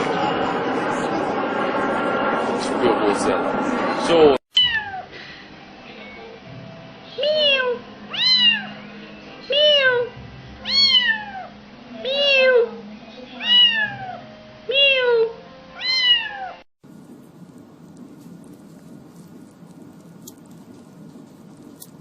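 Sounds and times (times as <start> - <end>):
cat meowing: 4.6 - 5.1, 7.2 - 8.7, 9.5 - 11.5, 13.4 - 16.6.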